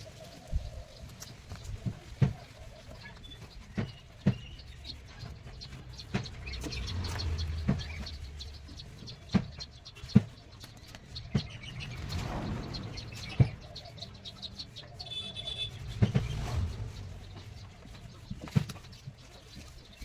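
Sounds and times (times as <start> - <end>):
low hum: 10.8 - 19.7.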